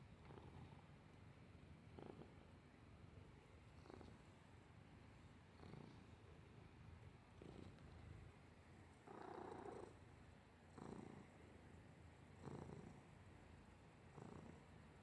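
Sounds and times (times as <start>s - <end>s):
cat purring: 0.1s - 1.1s, 1.8s - 2.6s, 3.7s - 4.3s, 5.4s - 6.7s, 7.3s - 8.3s, 9.0s - 10.1s, 10.7s - 11.6s, 12.3s - 13.2s, 14.0s - 15.0s.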